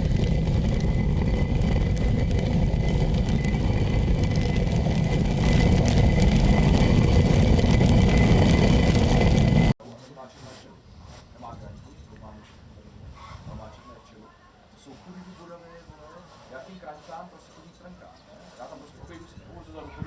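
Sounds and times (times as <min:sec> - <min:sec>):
millstones grinding: 0:00.0 - 0:09.8.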